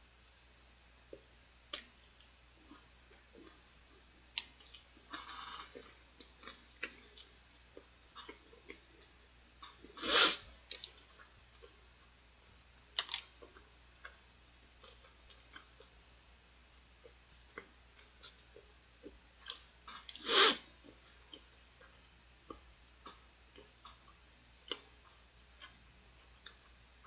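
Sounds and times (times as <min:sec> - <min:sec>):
person chewing: 0:01.1 - 0:10.0, 0:12.9 - 0:16.0, 0:17.0 - 0:26.8.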